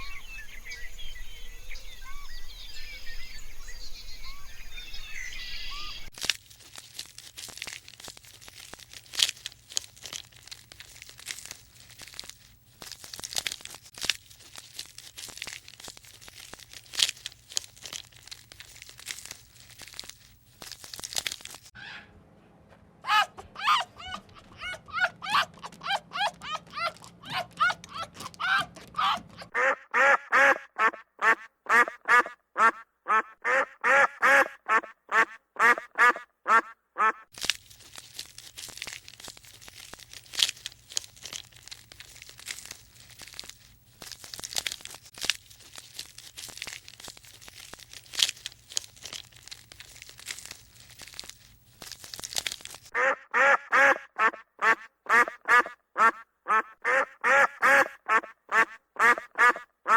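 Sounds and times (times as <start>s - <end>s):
crackling rustling noise: 6.1s - 21.8s, 37.2s - 53.2s
animal calls repeating rapidly: 23.1s - 37.3s, 53.0s - 59.9s.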